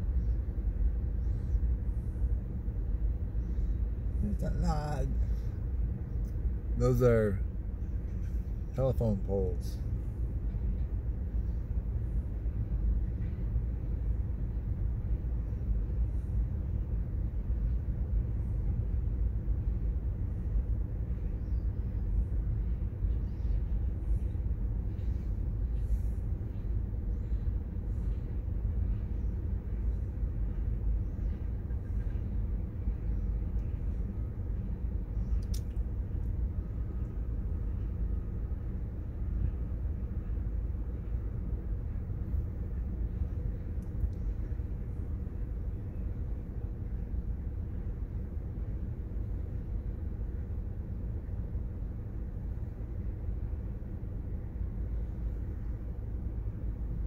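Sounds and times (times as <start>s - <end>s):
freight train rumbling past: 0.0s - 57.0s
faint clicks: 35.3s - 36.3s.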